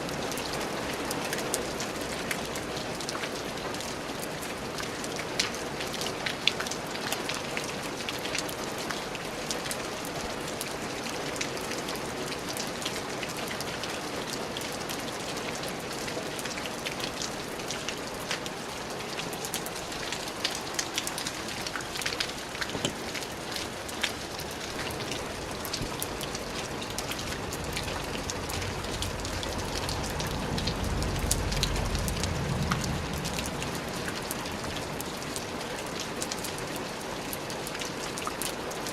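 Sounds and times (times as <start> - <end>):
rain drops ticking on hard surface: 0.0 - 38.9
low rumble: 27.3 - 34.0.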